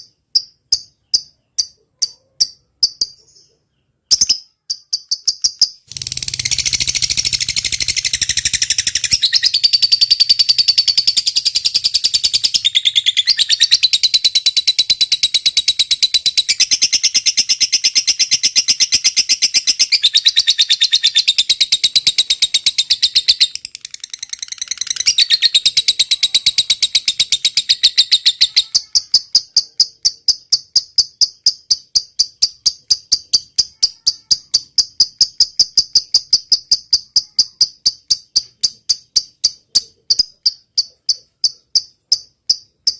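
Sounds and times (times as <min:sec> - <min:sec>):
chattering bird song: 0:00.0 - 0:42.9.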